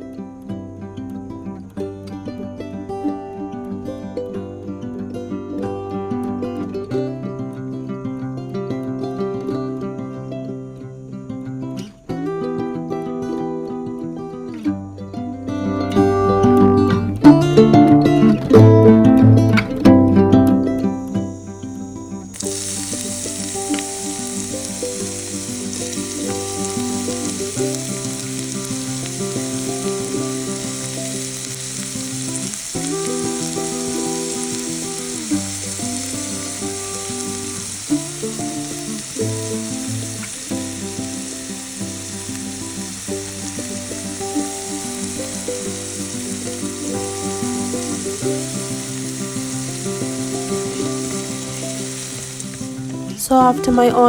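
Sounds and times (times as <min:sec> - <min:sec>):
onions sizzling in oil: 0:15.8 - 0:54.0.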